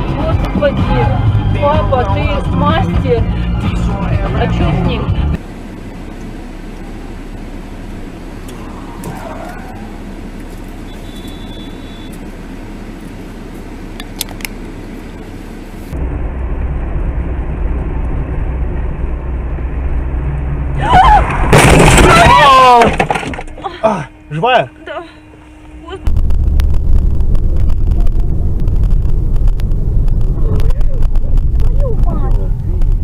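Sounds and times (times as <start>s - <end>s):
deep rumble: 0.0s - 10.9s, 12.2s - 33.0s
road and engine noise in car: 0.0s - 33.0s
sudden very loud sound: 26.0s - 31.6s.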